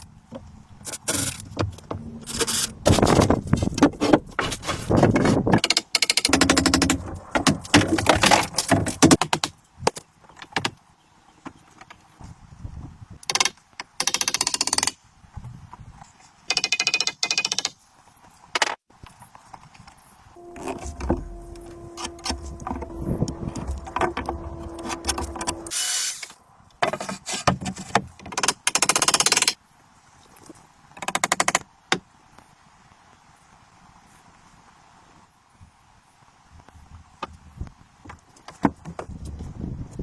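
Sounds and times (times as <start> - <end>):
motor running: 20.4 - 26.0.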